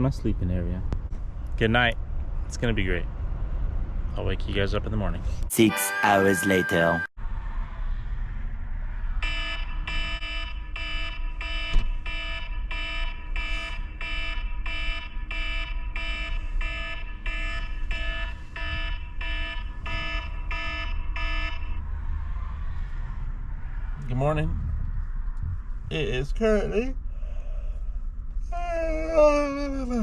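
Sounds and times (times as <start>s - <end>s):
low steady rumble: 0.0s - 5.5s, 7.2s - 30.0s
alarm beeping: 5.5s - 7.1s, 9.2s - 21.8s
thump: 11.7s - 12.0s.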